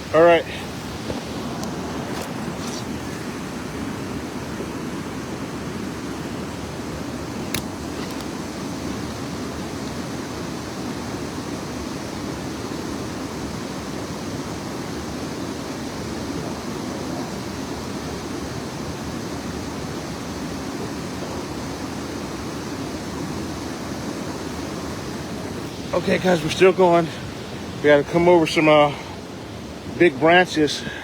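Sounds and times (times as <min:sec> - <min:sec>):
river water rushing: 0:00.0 - 0:31.0.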